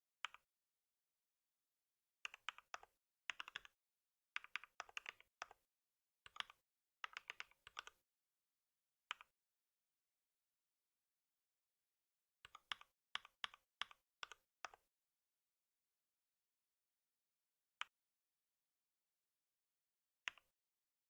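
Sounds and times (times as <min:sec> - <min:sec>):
typing on computer keyboard: 0:02.3 - 0:03.8.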